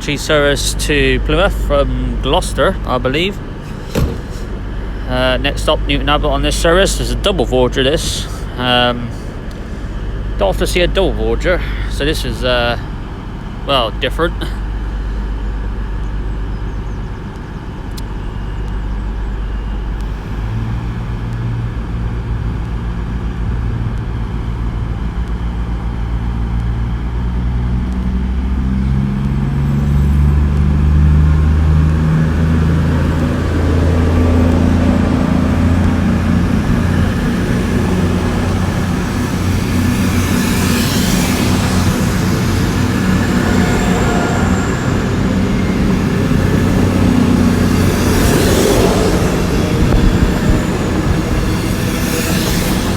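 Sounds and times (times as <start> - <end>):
diesel train engines pulling away: 0.0 - 52.9
rushing hiss: 3.6 - 5.0.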